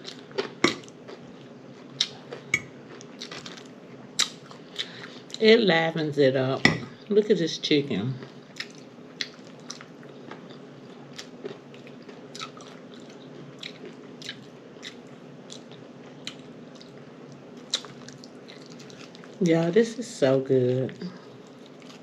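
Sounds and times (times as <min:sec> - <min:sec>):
person chewing food: 0:00.0 - 0:05.4, 0:08.2 - 0:19.4, 0:21.2 - 0:22.0
faint steady hum: 0:00.0 - 0:22.0.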